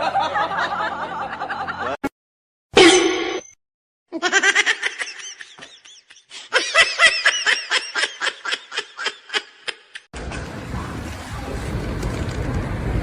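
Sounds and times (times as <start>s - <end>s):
person laughing: 4.2s - 10.1s.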